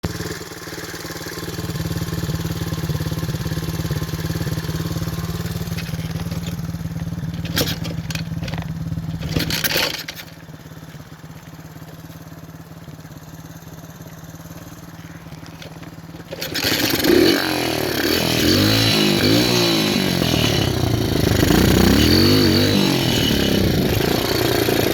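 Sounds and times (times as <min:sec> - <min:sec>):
motorbike engine idling: 0:00.0 - 0:24.9
engine noisy bursts: 0:14.8 - 0:24.9.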